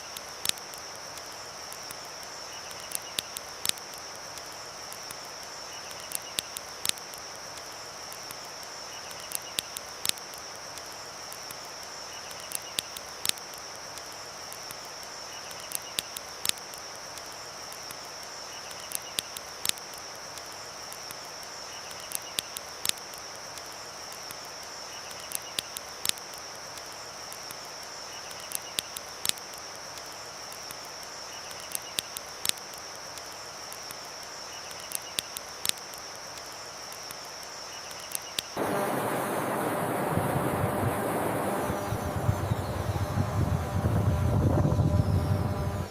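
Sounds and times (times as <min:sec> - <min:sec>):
campfire crackling and popping: 0:00.0 - 0:42.4
high insect drone: 0:00.0 - 0:45.9
river rushing: 0:38.6 - 0:42.9.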